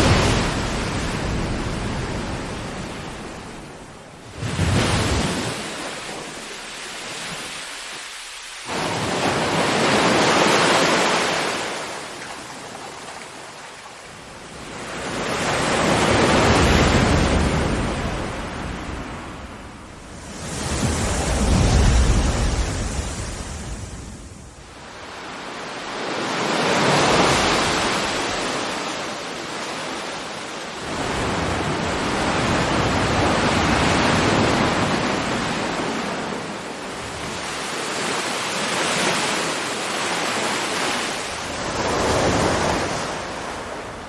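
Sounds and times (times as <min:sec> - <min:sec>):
ocean waves washing in: 0:00.0 - 0:44.0.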